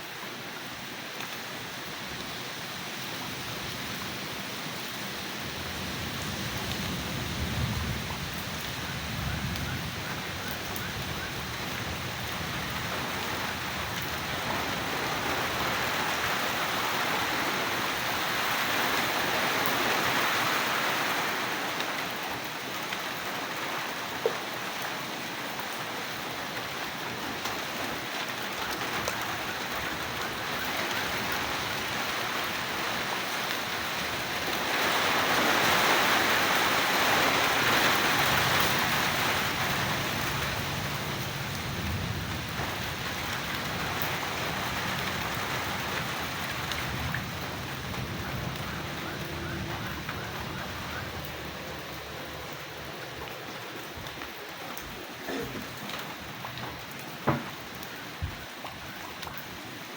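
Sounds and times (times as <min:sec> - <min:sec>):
heavy rain hissing: 0:00.0 - 0:59.9
low rumble: 0:46.0 - 0:54.2.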